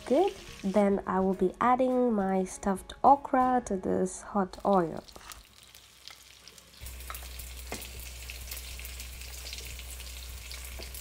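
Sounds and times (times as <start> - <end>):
okra sizzling in hot oil: 0.0 - 0.8, 4.6 - 11.0.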